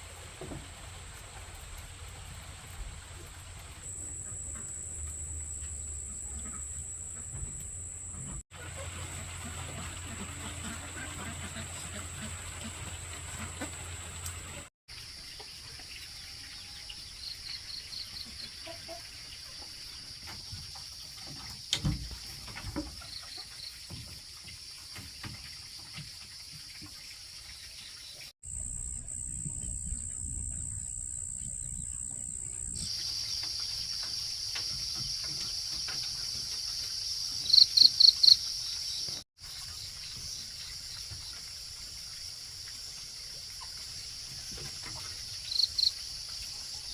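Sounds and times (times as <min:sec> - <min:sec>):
high-pitched insect drone: 0:03.8 - 0:08.4, 0:28.5 - 0:38.6.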